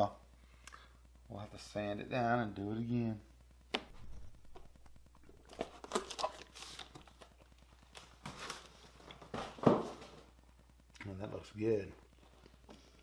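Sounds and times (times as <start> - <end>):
crinkling and rustling: 3.8 - 10.4.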